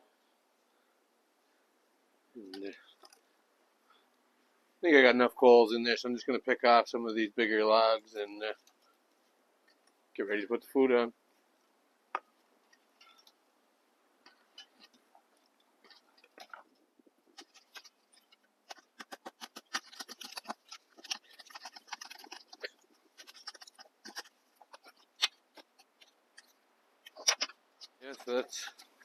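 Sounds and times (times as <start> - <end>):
wood fire crackling: 12.1 - 13.5, 14.1 - 29.0.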